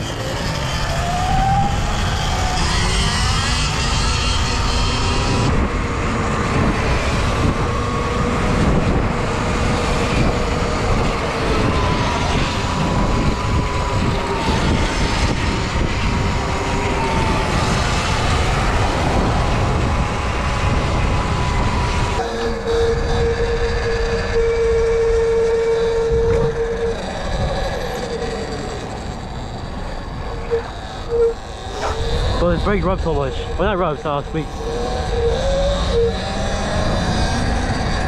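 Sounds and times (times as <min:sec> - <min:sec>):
electric motor whine: 0:00.0 - 0:38.0
wind buffeting microphone: 0:00.0 - 0:38.0.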